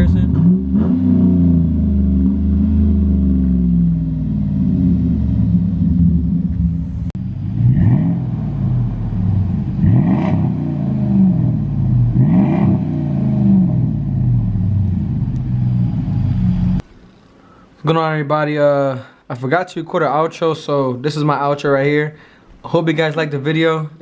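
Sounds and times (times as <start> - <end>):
car exhaust idling and revving: 0.0 - 16.8.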